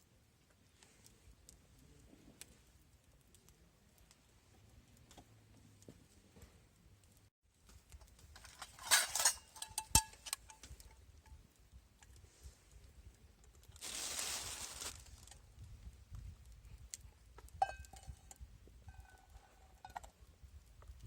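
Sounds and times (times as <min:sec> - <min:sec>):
metal cookware clinking: 0:08.4 - 0:10.8.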